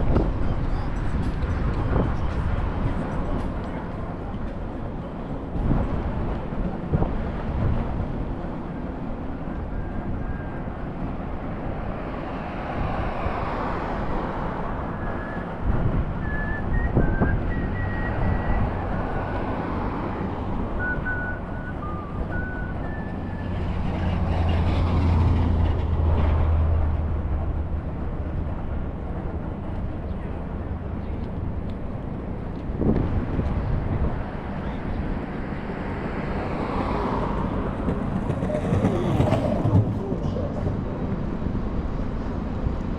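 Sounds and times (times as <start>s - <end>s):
city street traffic: 0.0s - 42.9s
wind buffeting microphone: 14.2s - 21.2s, 23.5s - 35.9s, 37.2s - 42.9s.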